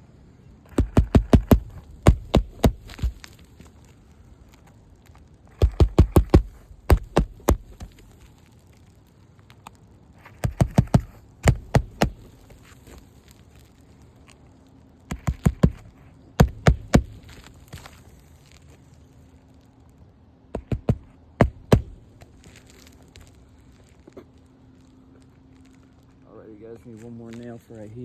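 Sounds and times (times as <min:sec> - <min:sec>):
hammer striking roofing nails: 0:00.7 - 0:03.4, 0:05.5 - 0:08.2, 0:10.2 - 0:12.8, 0:15.1 - 0:17.9, 0:20.5 - 0:22.2.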